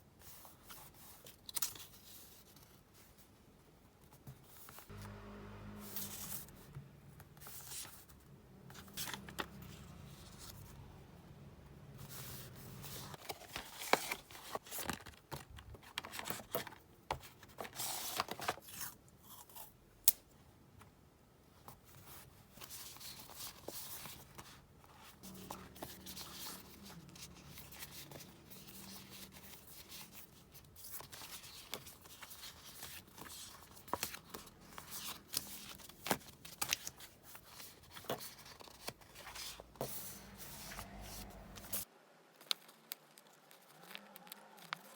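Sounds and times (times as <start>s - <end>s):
paper and tape tearing and rustling: 42.5s - 44.9s.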